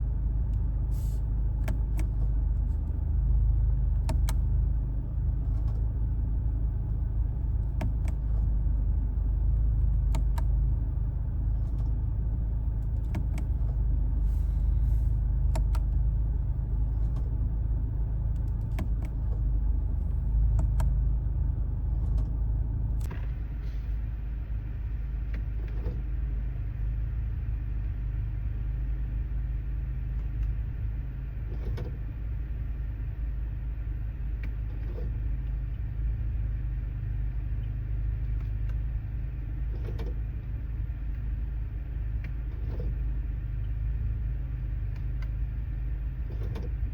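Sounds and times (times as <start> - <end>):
road and drivetrain rumble: 0.0 - 46.9
sharp clicks and knocks: 7.4 - 8.5, 9.8 - 10.6, 12.8 - 13.8, 15.4 - 16.0, 18.3 - 19.5, 20.1 - 21.0, 46.3 - 46.8.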